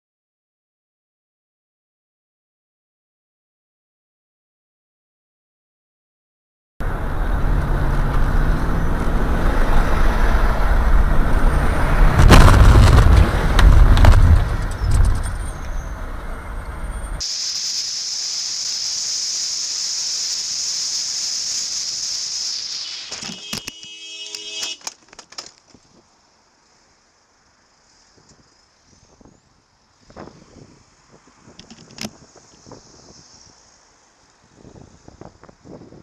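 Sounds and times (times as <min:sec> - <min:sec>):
car road and engine rumble: 0:06.8 - 0:17.3
car crash impact: 0:12.1 - 0:15.6
high-pitched whine: 0:14.4 - 0:24.7
faint hiss: 0:17.2 - 0:24.8, 0:25.7 - 0:36.0.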